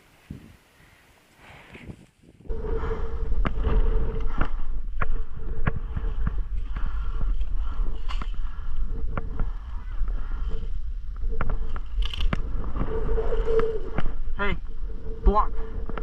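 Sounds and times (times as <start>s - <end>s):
wind buffeting microphone: 1.7s - 16.0s.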